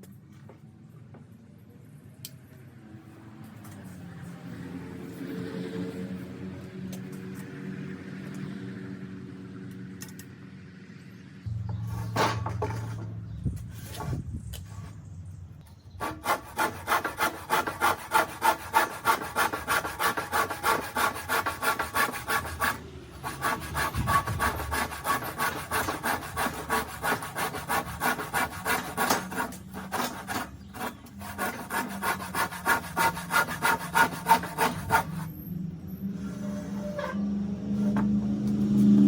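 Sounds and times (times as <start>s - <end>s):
hand tool scraping hard surface: 16.0s - 35.3s.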